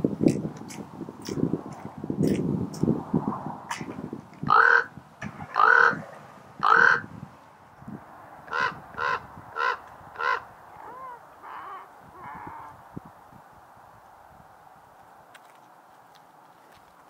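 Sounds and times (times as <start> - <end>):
raven croaking: 3.6 - 7.2, 8.2 - 12.9.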